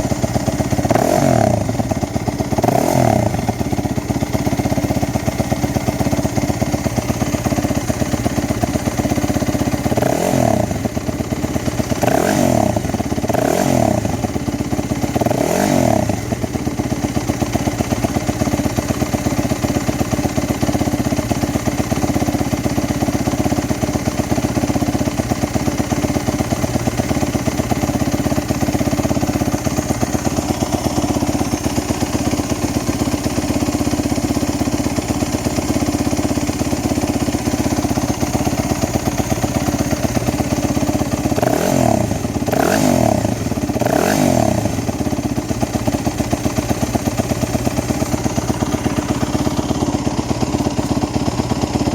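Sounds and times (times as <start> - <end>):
motorcycle engine idling: 0.0 - 51.9
engine revving: 0.9 - 1.8, 2.6 - 3.4, 10.0 - 10.8, 12.0 - 14.2, 15.2 - 16.2, 41.3 - 44.9.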